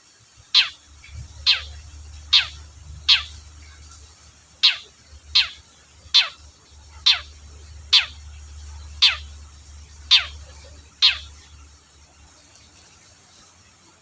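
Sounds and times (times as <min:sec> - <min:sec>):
bird giving harsh calls: 0:00.5 - 0:11.6.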